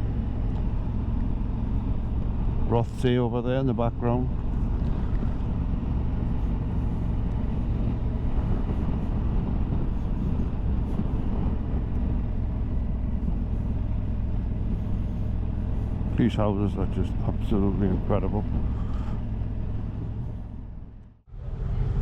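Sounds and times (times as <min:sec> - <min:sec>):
motorcycle engine running: 0:00.0 - 0:22.0
wind on microphone: 0:04.3 - 0:16.2.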